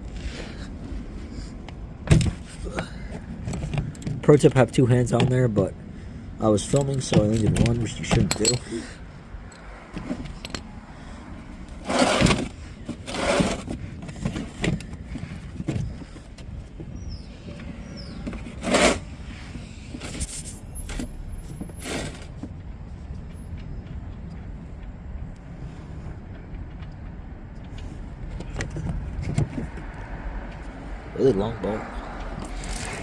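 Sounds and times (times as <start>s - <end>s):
wrench scraping and clinking: 6.6s - 10.7s
steady low rumble: 13.7s - 33.0s.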